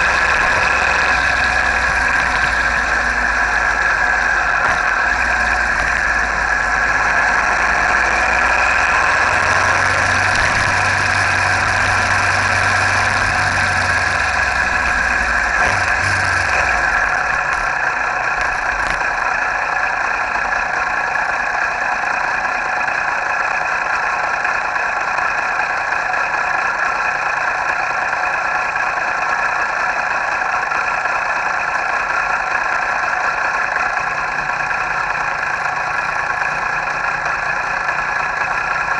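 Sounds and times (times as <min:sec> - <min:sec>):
deep low rumble: 0:00.0 - 0:21.0
motorcycle engine running: 0:00.0 - 0:38.9.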